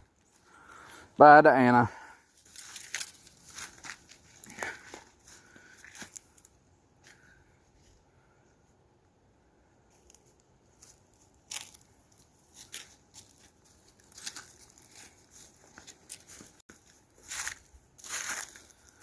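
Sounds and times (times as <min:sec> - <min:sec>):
footsteps crunching in snow: 0:02.4 - 0:06.5, 0:10.0 - 0:19.0.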